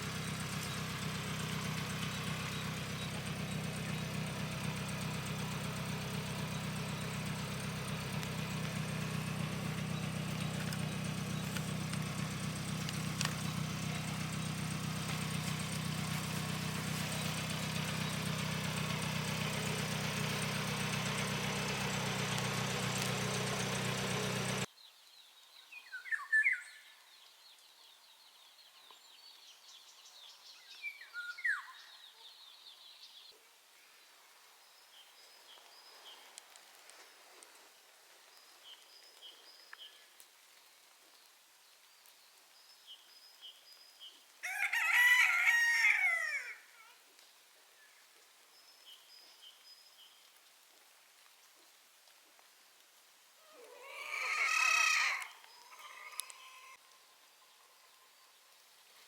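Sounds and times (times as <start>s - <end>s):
engine running steadily: 0.0s - 24.7s
short bird calls: 53.4s - 56.8s.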